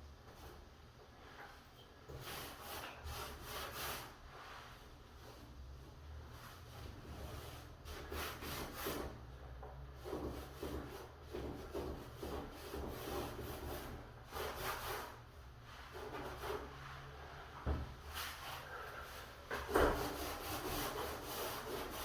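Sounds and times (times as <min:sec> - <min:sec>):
rubbing on wooden door: 0:10.0 - 0:15.2, 0:15.8 - 0:22.0.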